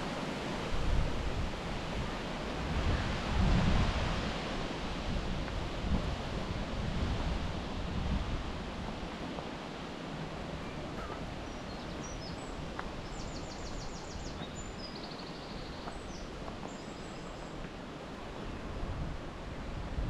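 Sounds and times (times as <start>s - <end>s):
wind noise: 0.0s - 20.0s
songbird twittering: 10.6s - 17.5s.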